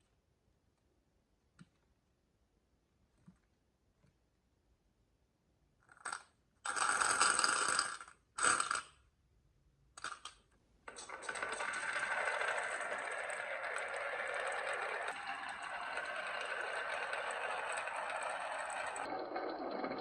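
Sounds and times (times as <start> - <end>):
marbles rolling down wooden run: 6.1 - 8.8, 10.9 - 20.0.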